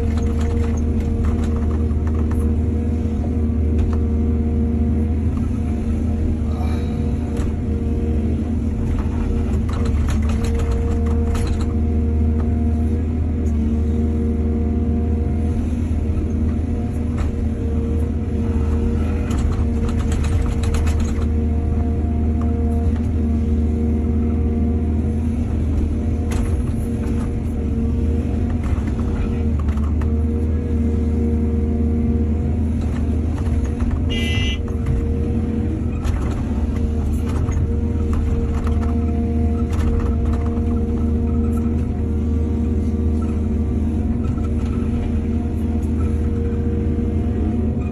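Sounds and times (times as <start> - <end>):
excavator engine droning: 0.0 - 47.9.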